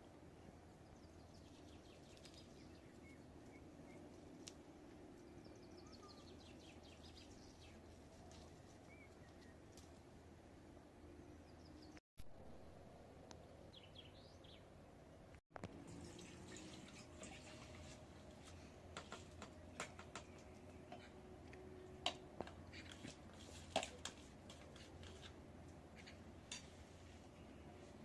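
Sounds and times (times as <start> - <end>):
faint bird chirps: 5.2 - 9.6.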